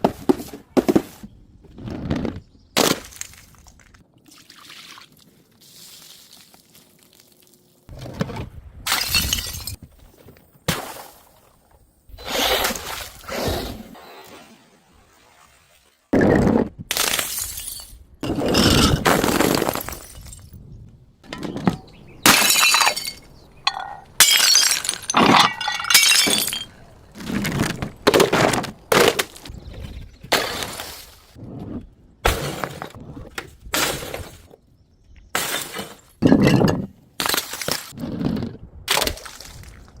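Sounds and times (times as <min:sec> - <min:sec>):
glass bottles breaking: 0:08.9 - 0:09.8, 0:17.0 - 0:20.5, 0:22.2 - 0:26.8.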